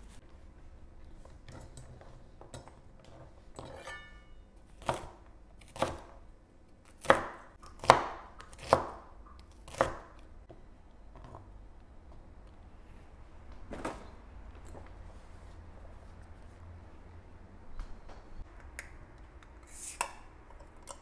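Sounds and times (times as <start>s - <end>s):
knife chopping on cutting board: 4.8s - 6.2s, 6.9s - 10.2s.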